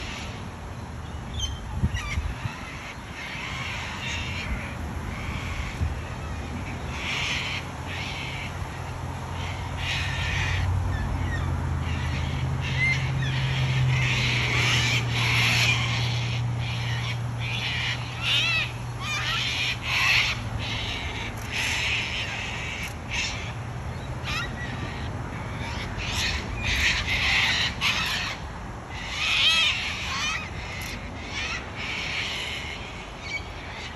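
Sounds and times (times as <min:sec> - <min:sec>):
cockatoos screeching: 0:09.4 - 0:23.6, 0:24.2 - 0:33.9.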